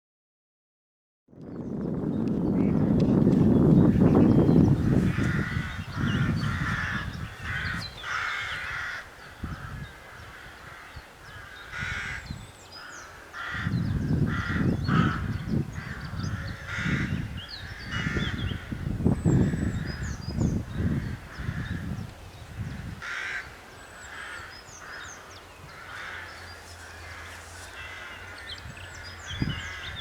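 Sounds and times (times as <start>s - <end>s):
crows cawing: 5.0s - 20.1s, 20.8s - 22.0s, 22.6s - 30.0s.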